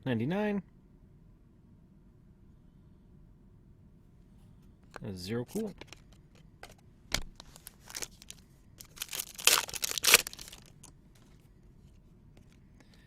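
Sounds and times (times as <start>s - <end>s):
wrapper crinkling and tearing: 7.2s - 10.9s.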